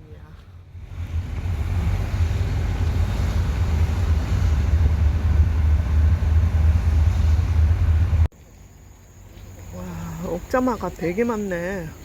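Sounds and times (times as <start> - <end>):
wind buffeting microphone: 0.7 - 8.3.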